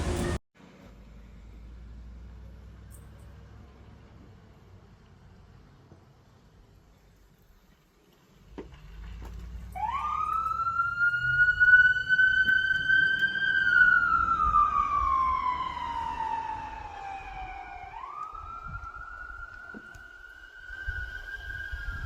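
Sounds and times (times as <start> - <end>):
vehicle engine and road rumble: 0.0 - 22.0
emergency siren wailing: 9.7 - 22.0.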